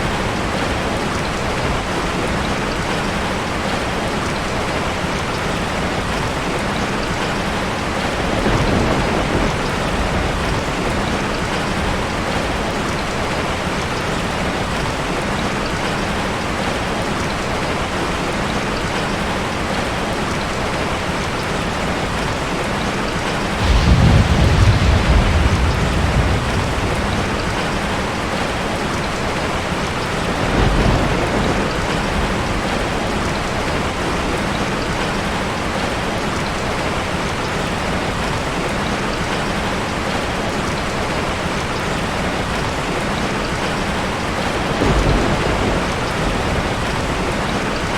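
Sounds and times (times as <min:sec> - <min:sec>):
heavy rain falling: 0:00.0 - 0:47.9
distant thunder rumbling: 0:06.8 - 0:13.5, 0:23.3 - 0:35.1, 0:44.5 - 0:47.9.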